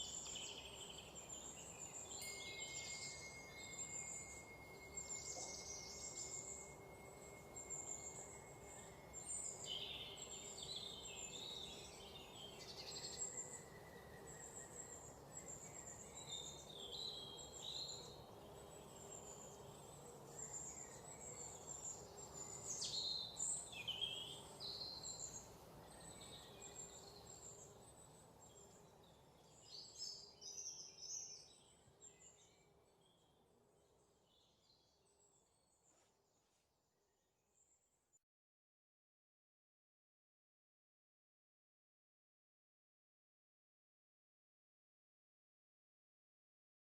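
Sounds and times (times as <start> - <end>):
high insect drone: 0.0 - 25.6.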